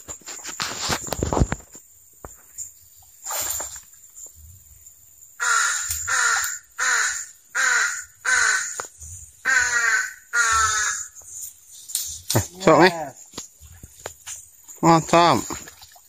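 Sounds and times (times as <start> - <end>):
bird calling: 5.4 - 11.4.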